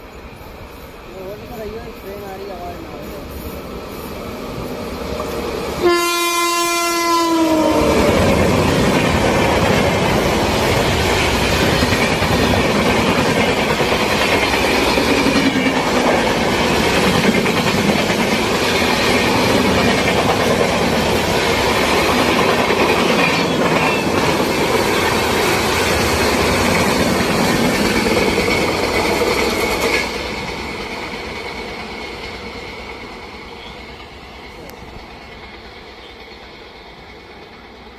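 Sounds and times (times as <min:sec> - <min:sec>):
train rumble and wheel clatter: 0:00.0 - 0:37.9
train horn blast: 0:05.8 - 0:08.3.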